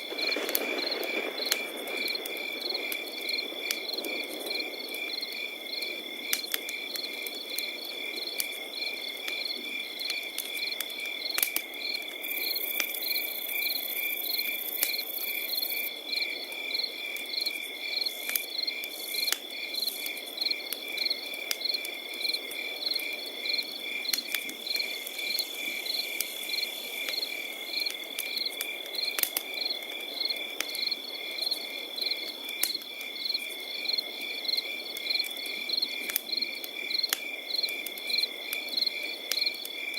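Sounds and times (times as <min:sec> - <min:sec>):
campfire crackling and popping: 0:00.0 - 0:39.9
crickets chirping: 0:00.0 - 0:39.9.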